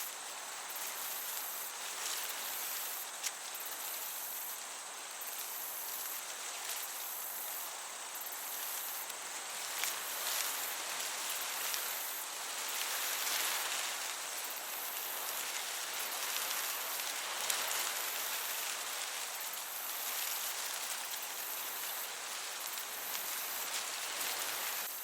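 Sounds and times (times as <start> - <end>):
crickets chirping: 0.0 - 25.0
gentle breeze hiss: 0.0 - 25.0.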